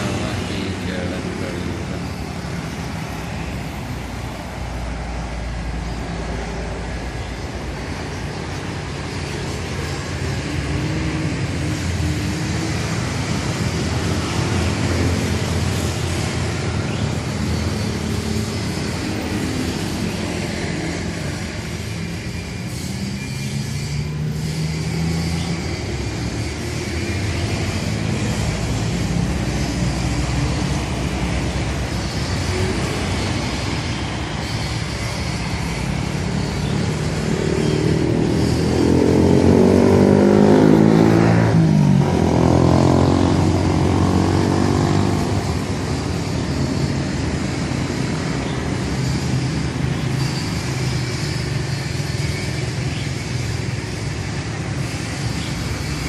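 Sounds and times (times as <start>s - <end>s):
road noise: 0.0s - 56.0s
vehicle driving past: 35.4s - 51.6s.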